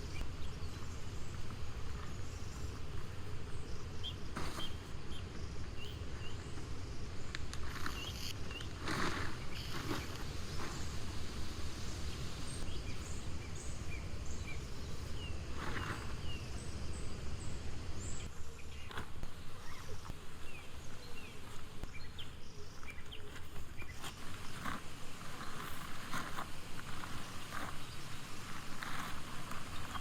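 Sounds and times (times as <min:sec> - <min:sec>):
low wind rumble: 0:00.0 - 0:22.6
small birds chirping: 0:00.0 - 0:30.0.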